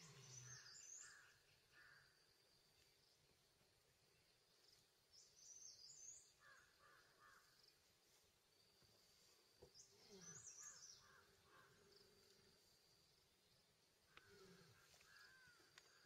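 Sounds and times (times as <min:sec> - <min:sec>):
repeated lower bird calls: 0:00.0 - 0:02.1, 0:09.6 - 0:12.5
forest ambience: 0:00.0 - 0:16.0.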